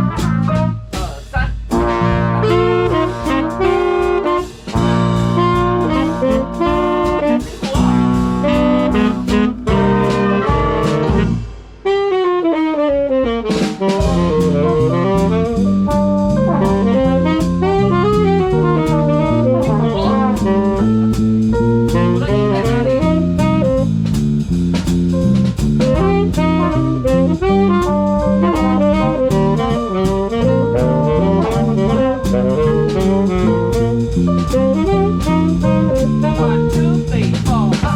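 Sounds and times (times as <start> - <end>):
drum kit steady beat: 0.0 - 37.9
swing big band playing jazz: 0.0 - 37.9.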